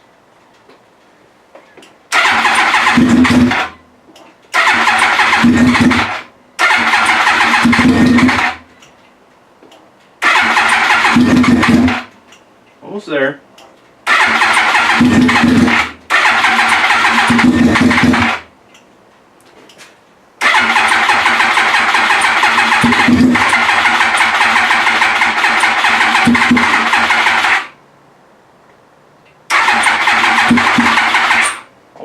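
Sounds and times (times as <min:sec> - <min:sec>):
motorcycle engine cranking: 0:02.1 - 0:03.8, 0:04.5 - 0:08.6, 0:10.2 - 0:12.1, 0:14.1 - 0:18.5, 0:20.4 - 0:27.7, 0:29.5 - 0:31.7.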